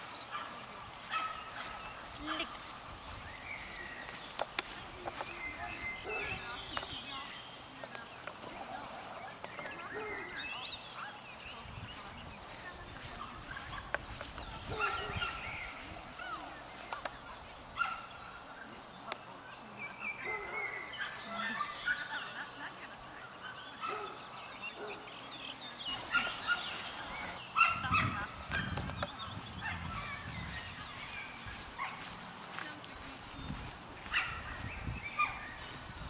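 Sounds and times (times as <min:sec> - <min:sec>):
birds chirping and whistling: 0:01.1 - 0:08.2, 0:23.3 - 0:32.2, 0:33.1 - 0:36.0.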